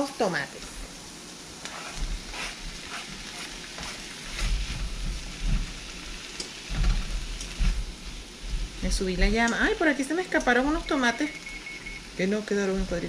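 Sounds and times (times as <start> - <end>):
vegetables sizzling in hot oil: 0.0 - 13.0
spatula scraping pan: 1.6 - 9.2.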